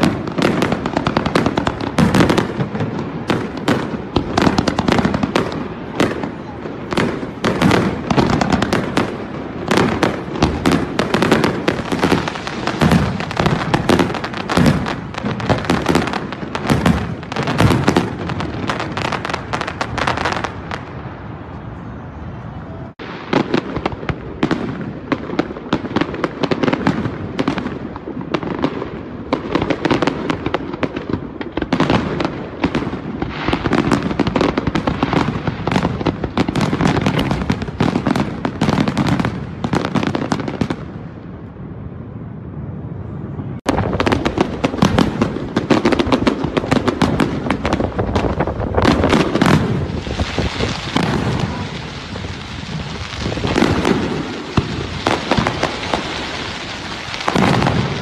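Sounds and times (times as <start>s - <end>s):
fireworks hiss: 0.0s - 21.0s, 43.8s - 58.0s
fireworks bangs and crackles: 0.0s - 58.0s.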